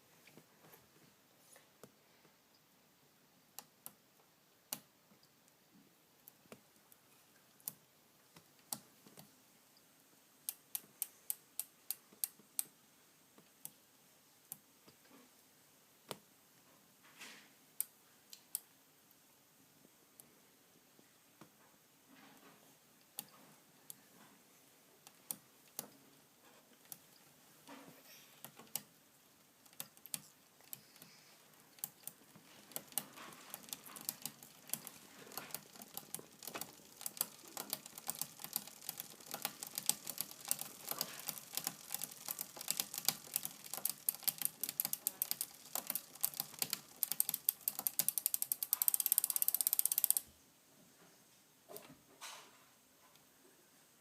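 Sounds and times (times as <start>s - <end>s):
bicycle derailleur clicking: 29.6s - 50.2s.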